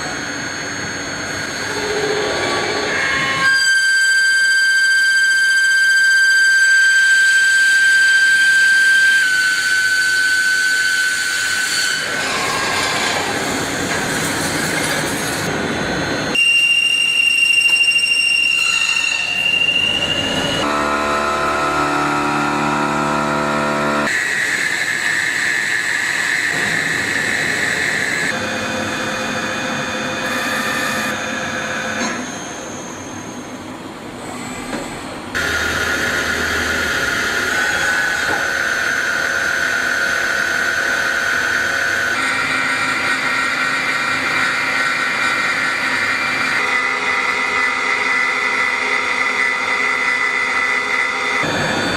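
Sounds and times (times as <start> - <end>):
metal machining noise: 0.0 - 51.9
milling machine whine: 0.0 - 51.9.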